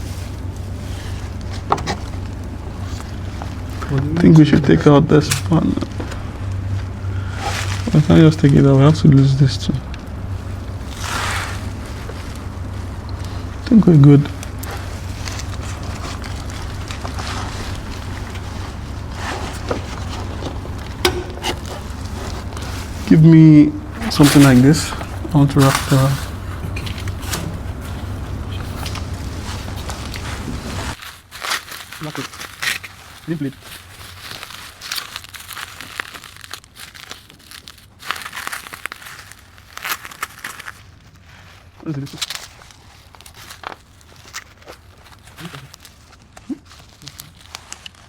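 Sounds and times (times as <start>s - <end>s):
steady low hum: 0.0s - 31.1s
faint handling noises: 0.0s - 48.0s
plastic wrapping crinkling: 0.0s - 48.0s.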